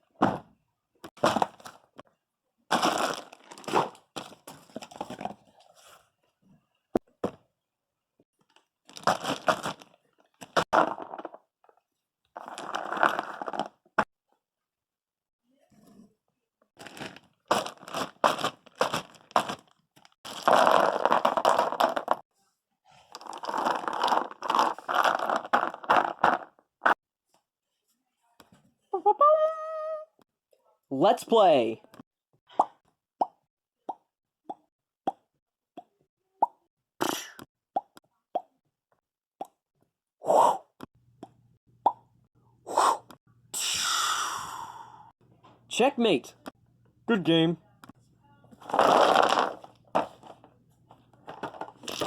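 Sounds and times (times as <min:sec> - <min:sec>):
crinkling crunching handling noise: 0:01.2 - 0:02.0, 0:02.7 - 0:06.0, 0:08.4 - 0:11.4, 0:12.4 - 0:13.9, 0:16.8 - 0:22.2, 0:23.0 - 0:27.0, 0:48.6 - 0:52.0.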